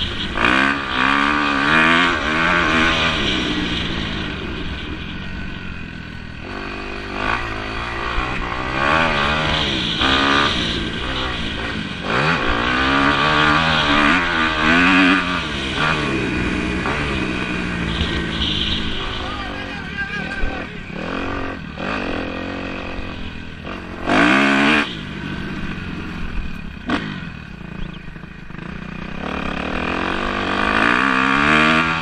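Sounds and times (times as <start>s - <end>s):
motocross bikes revving: 0.0s - 32.0s.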